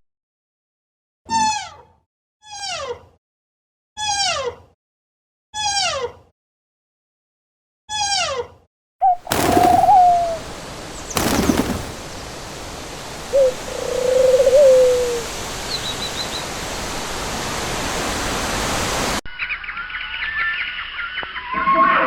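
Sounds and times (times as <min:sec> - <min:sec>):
bird wavering call: 0:09.0 - 0:10.5, 0:13.3 - 0:16.0
bird wings flapping: 0:09.1 - 0:12.4
steady hiss: 0:09.4 - 0:19.2.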